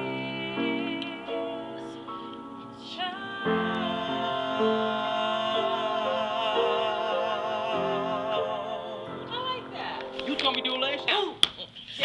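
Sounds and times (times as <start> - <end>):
person singing with vibrato: 0.0 - 10.5.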